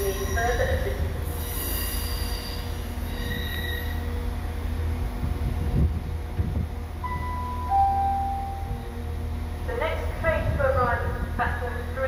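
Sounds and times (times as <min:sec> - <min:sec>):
train engine hum: 0:00.0 - 0:12.0
wheel squeal: 0:01.4 - 0:04.0
steady tone: 0:07.0 - 0:09.4.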